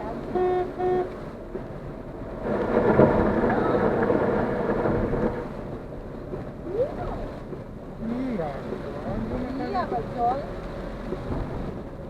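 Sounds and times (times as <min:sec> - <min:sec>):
car horn honk: 0:00.3 - 0:01.1
water drumming on car body: 0:01.4 - 0:12.0.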